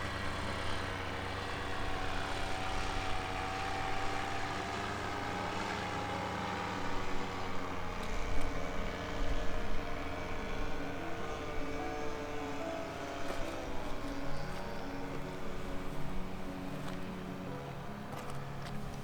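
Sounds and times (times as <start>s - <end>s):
motor drone: 0.0s - 19.0s.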